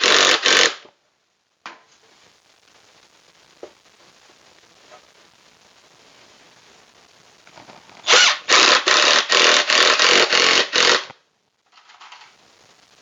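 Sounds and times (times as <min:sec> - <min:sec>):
power drill driving screw into wood: 0:00.0 - 0:00.9, 0:08.0 - 0:11.1.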